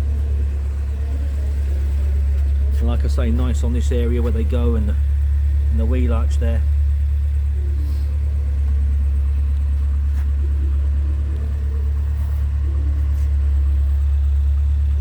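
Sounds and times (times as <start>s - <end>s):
loud low hum: 0.0s - 15.0s.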